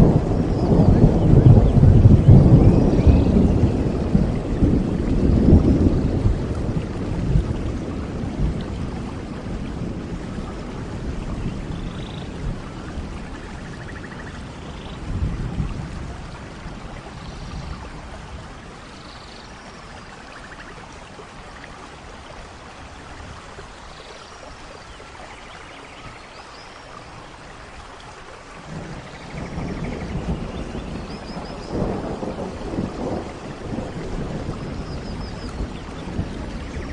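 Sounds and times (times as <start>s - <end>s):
rolling thunder: 0.0s - 18.6s, 28.6s - 36.9s
heavy rain: 0.0s - 36.9s.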